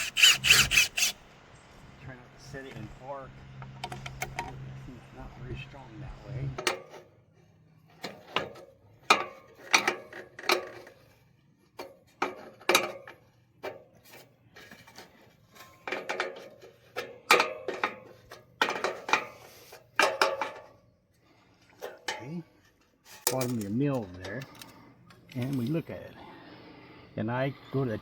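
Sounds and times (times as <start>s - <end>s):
metal clanks and knocks: 3.6s - 4.8s, 6.5s - 7.1s, 7.8s - 11.2s, 11.8s - 20.8s, 21.7s - 25.7s.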